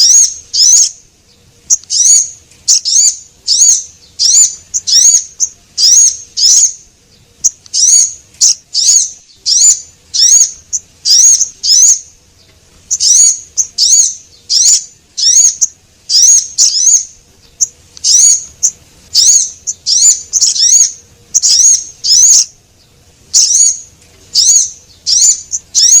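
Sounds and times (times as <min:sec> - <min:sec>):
small songbird chirps: 0:00.0 - 0:26.0.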